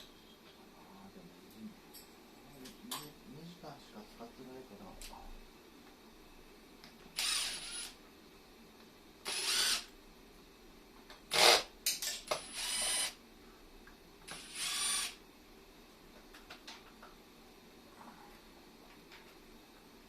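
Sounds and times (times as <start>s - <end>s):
cordless drill whirring: 7.2s - 8.0s, 9.2s - 9.9s, 11.3s - 11.7s, 12.3s - 13.2s, 14.3s - 15.2s.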